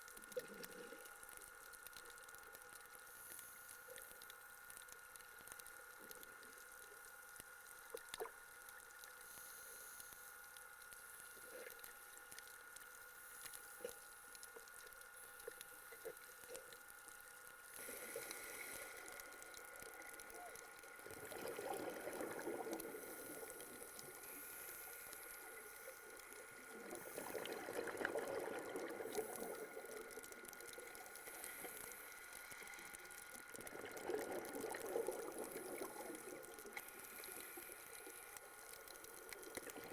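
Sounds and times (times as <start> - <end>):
faint steady tone: 0.0 - 39.9
underwater bubbles gurgling: 14.4 - 39.9.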